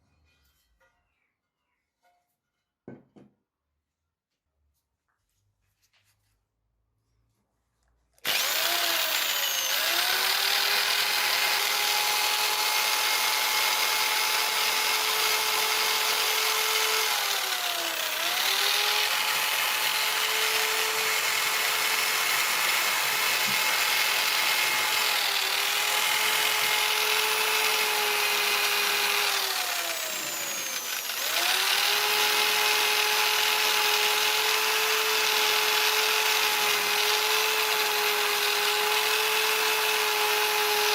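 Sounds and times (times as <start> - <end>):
power tool motor whine: 8.2 - 40.9.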